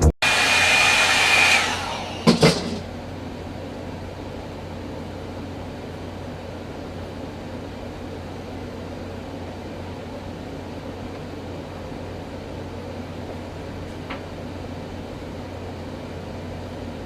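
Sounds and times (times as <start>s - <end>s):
hair dryer running: 0.0s - 2.8s.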